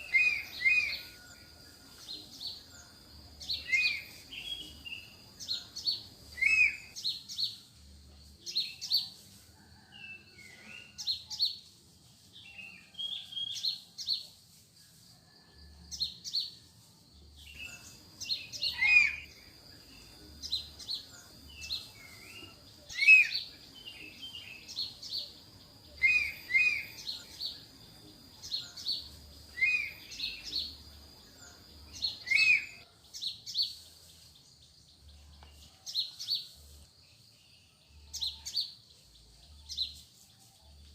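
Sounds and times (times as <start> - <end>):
birds chirping: 0.0 - 7.6, 17.4 - 35.6.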